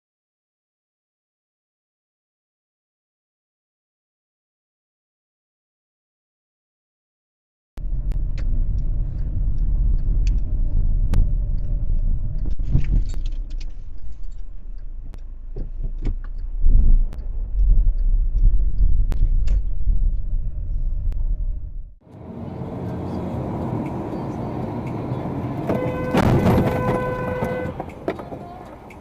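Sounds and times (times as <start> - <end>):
sharp clicks and knocks: 7.8 - 20.3
car road and engine rumble: 7.8 - 29.0.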